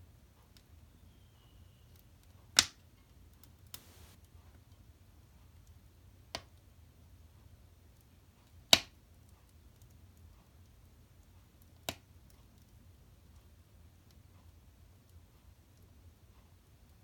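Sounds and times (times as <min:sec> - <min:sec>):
firewood crackling: 0:03.7 - 0:04.2
sharp pops: 0:03.7 - 0:04.2.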